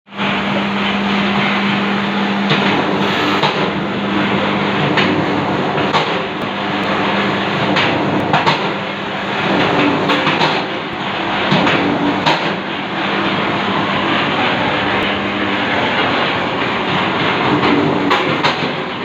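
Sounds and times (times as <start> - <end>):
electric motor hum: 0.3 - 17.6
sharp clicks and knocks: 5.8 - 15.1.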